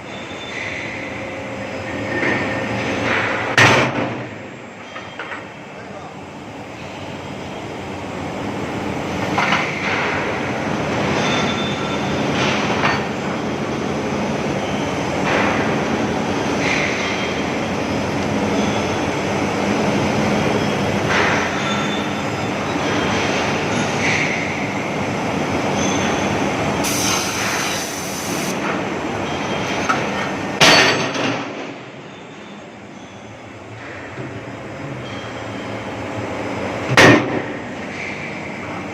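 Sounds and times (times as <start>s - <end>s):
metallic squeals: 0.0s - 1.2s, 21.5s - 23.2s.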